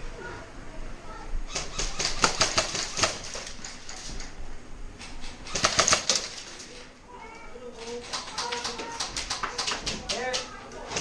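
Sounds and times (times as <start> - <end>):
airsoft guns firing: 1.5 - 3.6, 5.1 - 6.5.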